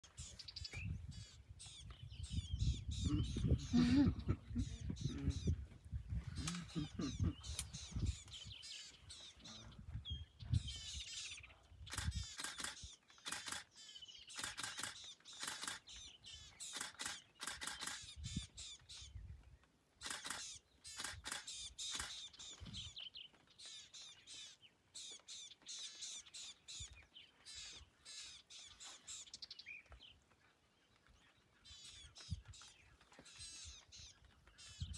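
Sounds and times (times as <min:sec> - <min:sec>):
birds trilling and chattering: 0:00.0 - 0:34.9.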